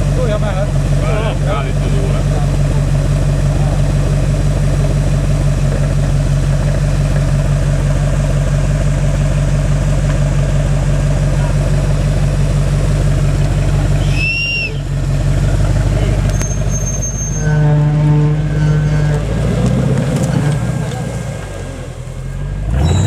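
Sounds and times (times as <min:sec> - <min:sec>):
vehicle engine running: 0:00.0 - 0:23.0
short high squeak: 0:14.0 - 0:14.8, 0:16.2 - 0:19.2, 0:22.8 - 0:23.0.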